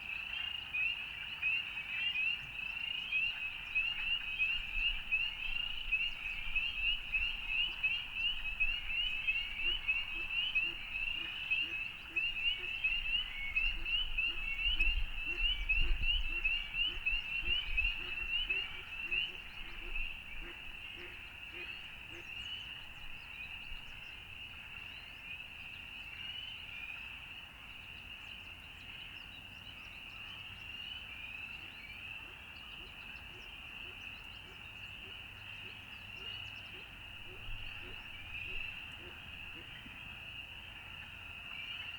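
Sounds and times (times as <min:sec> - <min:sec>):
frogs peeping: 0:03.2 - 0:24.9, 0:34.9 - 0:41.9.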